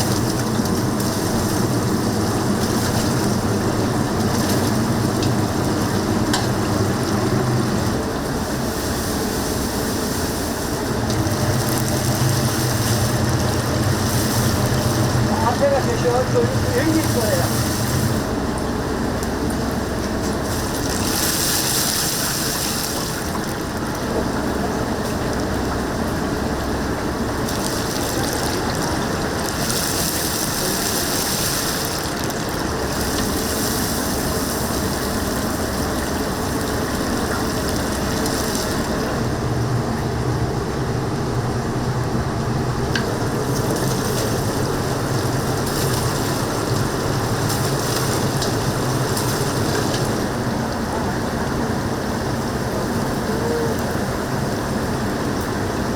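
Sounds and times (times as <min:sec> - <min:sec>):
oil sizzling: 0:00.0 - 0:24.4, 0:42.4 - 0:50.5
low steady hum: 0:00.0 - 0:55.9.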